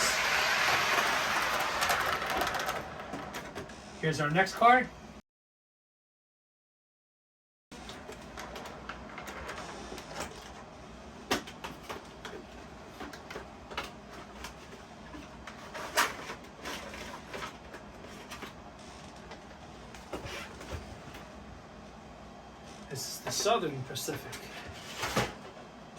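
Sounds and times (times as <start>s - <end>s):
toy boxcar rustling and scraping: 0.0s - 3.6s, 15.4s - 19.2s.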